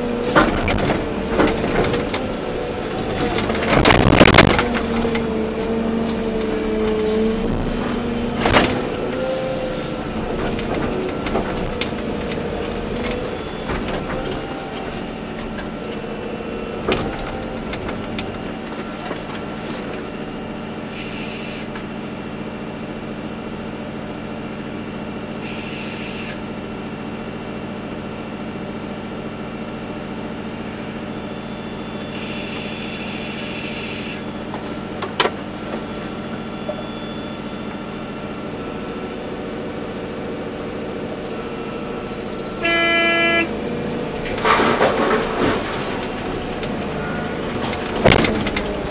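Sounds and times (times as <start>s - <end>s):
hydraulic whine: 0.0s - 22.9s, 28.9s - 34.4s, 41.2s - 48.9s
excavator diesel engine running: 0.0s - 48.9s.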